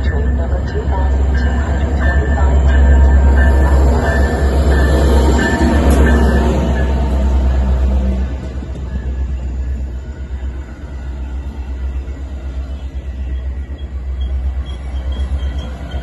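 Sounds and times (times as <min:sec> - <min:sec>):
diesel train rumbling: 0:00.0 - 0:16.0
high-pitched brake squealing: 0:13.2 - 0:16.0.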